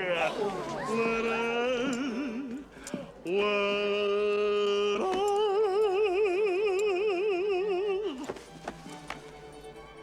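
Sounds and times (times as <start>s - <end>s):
man singing operatic note: 3.2s - 8.2s.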